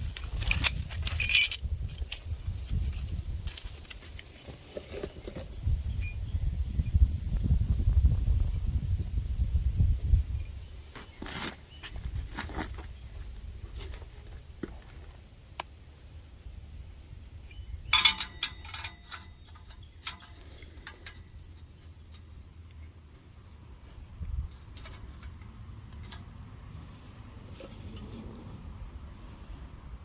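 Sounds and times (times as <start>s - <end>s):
metal hardware clinking: 0.1s - 2.3s, 17.4s - 22.4s, 24.5s - 26.3s.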